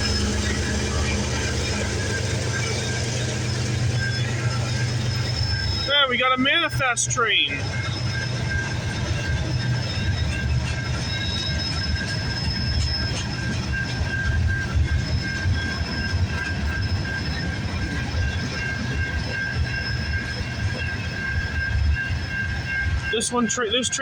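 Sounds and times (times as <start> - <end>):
freight train wheels rumbling on rail: 0.0 - 24.0
high-pitched ring: 0.0 - 24.0.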